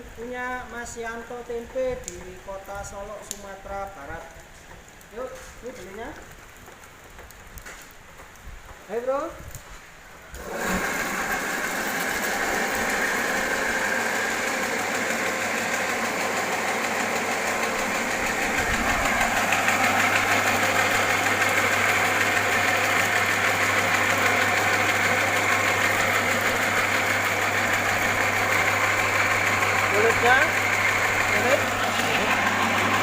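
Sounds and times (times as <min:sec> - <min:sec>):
separator machine running: 0:10.4 - 0:33.0.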